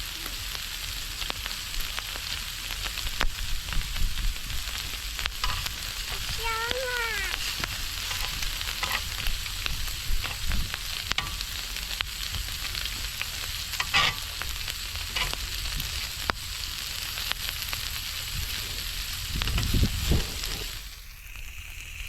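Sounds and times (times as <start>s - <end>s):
meat sizzling in a pan: 0.0s - 22.0s
fat spitting pops: 18.4s - 20.9s.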